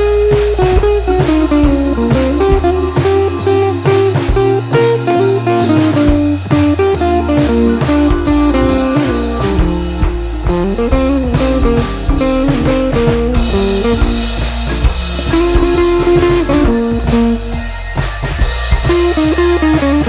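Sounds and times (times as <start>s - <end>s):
bluesy rock guitar and drums: 0.0s - 20.0s.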